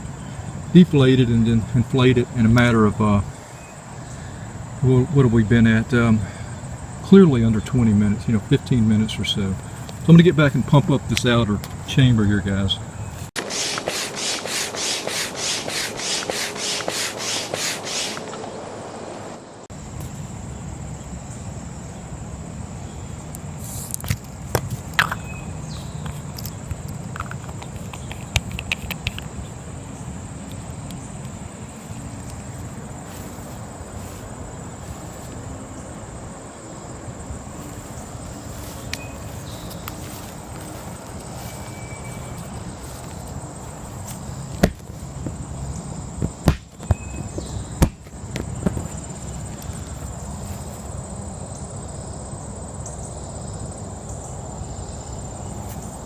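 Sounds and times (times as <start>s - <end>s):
crickets chirping: 0.0s - 56.0s
manual air pump pumping: 13.4s - 18.4s
sharp handling knocks: 44.1s - 45.4s, 46.2s - 49.0s.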